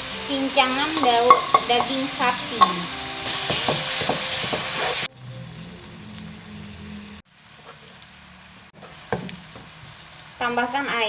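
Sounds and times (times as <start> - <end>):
meat sizzling in a wok: 0.0 - 11.0
spatula stirring knocks: 0.9 - 5.0.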